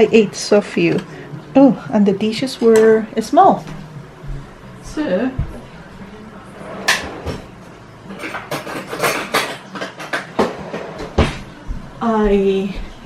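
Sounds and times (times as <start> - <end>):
dishes and cutlery clinking: 6.0 - 11.6.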